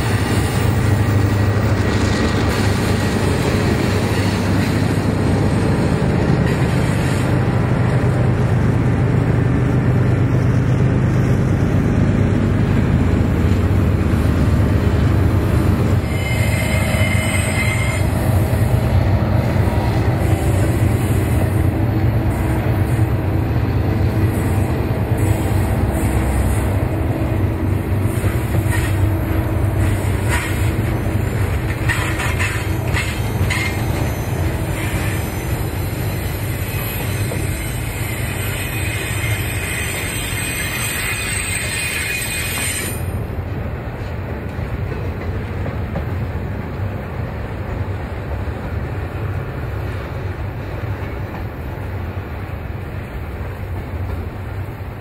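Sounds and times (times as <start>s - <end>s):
freight train rumbling: 0.0s - 55.0s
high wheel squeal: 15.9s - 18.7s, 28.1s - 43.2s.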